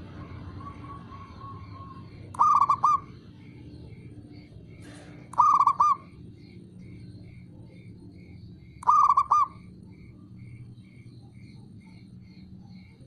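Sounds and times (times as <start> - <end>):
dove cooing: 0.0 - 4.2, 4.8 - 6.9, 7.7 - 9.8.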